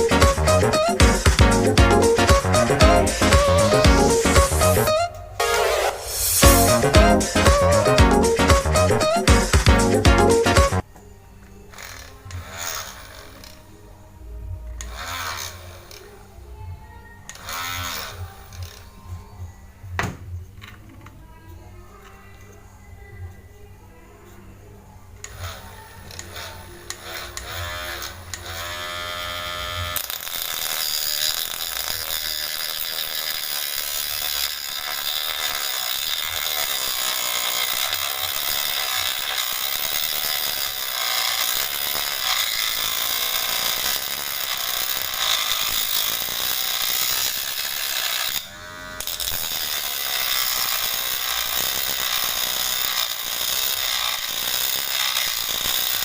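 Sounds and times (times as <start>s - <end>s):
electric motor spinning with high hiss: 5.7s - 7.4s, 25.4s - 56.0s.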